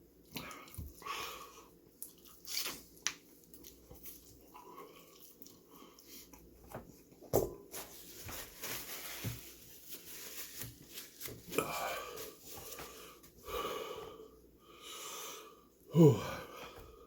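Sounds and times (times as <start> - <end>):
person chewing fried chicken: 0.1 - 6.6.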